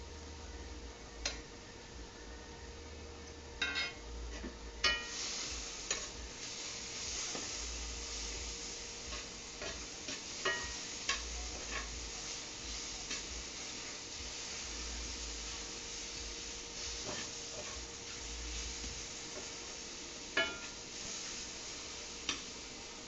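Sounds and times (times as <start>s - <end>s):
food sizzling in a frying pan: 0.0s - 23.0s
utensil scraping and clinking pan: 3.6s - 5.2s, 9.1s - 12.0s.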